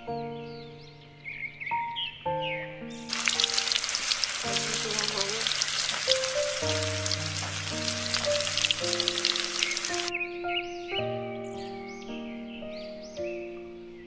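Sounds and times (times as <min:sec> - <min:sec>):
background music: 0:00.0 - 0:14.0
deep-frying crackling sizzle: 0:03.1 - 0:10.1.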